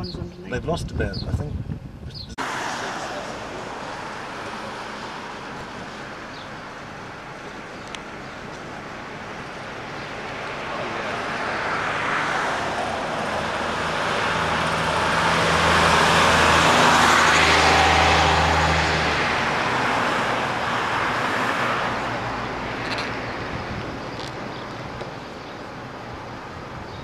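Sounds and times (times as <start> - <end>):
vehicle driving past: 10.6 - 23.3.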